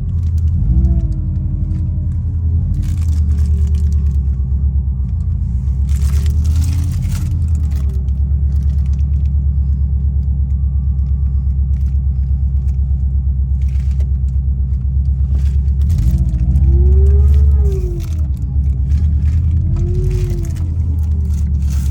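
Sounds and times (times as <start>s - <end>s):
car engine revving: 0.0s - 4.4s, 13.5s - 21.9s.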